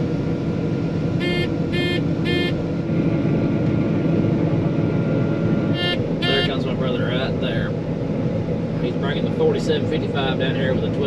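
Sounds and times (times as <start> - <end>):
combine engine and machinery drone: 0.0 - 11.0
short electronic beeps: 1.2 - 2.6, 5.7 - 6.6.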